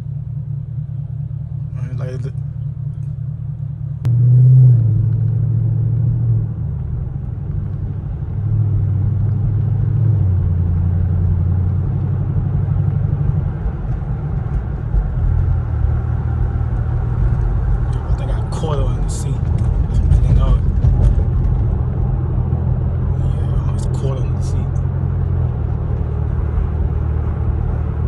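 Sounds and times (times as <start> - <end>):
car engine rumble: 0.0 - 28.0.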